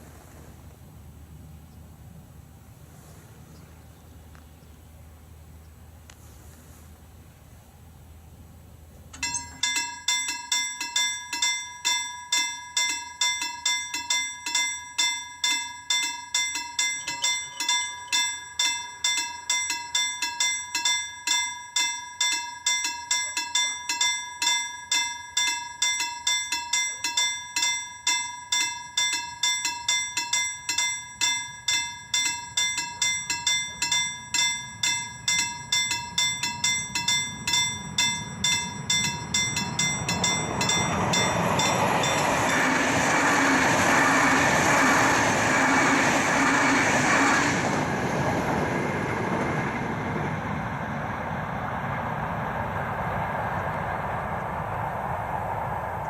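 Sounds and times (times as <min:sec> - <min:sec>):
level crossing warning bell: 0:09.2 - 0:51.0
low rumble: 0:36.6 - 0:56.0.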